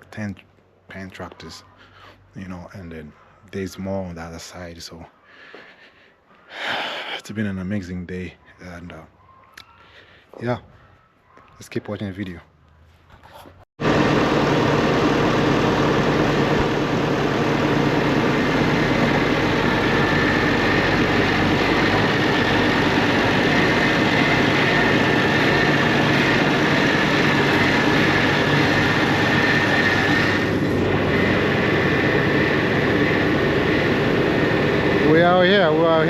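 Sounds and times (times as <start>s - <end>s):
machine drone with whine: 13.8s - 36.0s.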